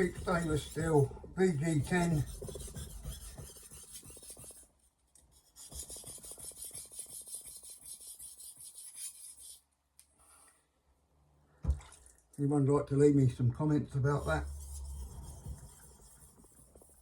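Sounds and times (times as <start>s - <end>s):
knife scraping on whetstone: 0.0s - 1.1s, 1.7s - 4.6s, 14.2s - 17.0s.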